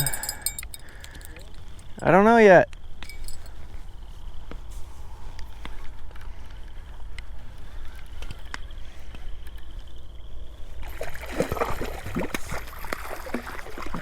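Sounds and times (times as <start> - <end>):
fish splashing in water: 10.8 - 14.0.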